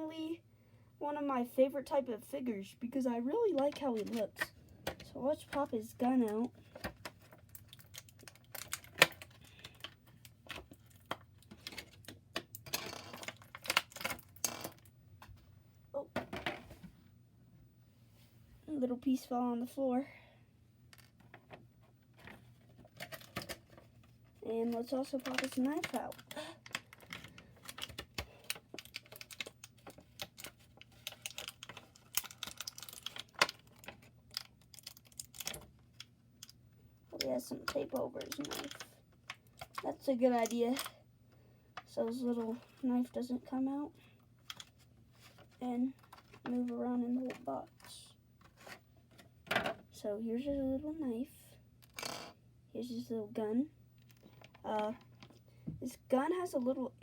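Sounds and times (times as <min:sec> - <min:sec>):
plastic packaging clicking and crinkling: 0:03.5 - 0:15.4, 0:20.9 - 0:41.0, 0:44.2 - 0:49.8, 0:54.0 - 0:55.4.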